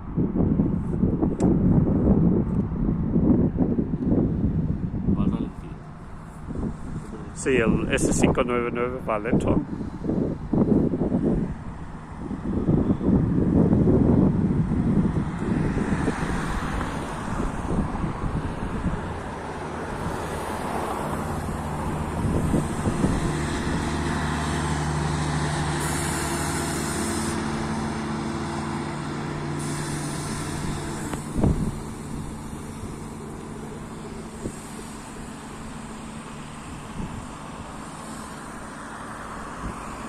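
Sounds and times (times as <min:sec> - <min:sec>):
diesel train engine humming: 0:00.0 - 0:40.0
wind on microphone: 0:00.0 - 0:40.0
short high hisses: 0:25.6 - 0:40.0.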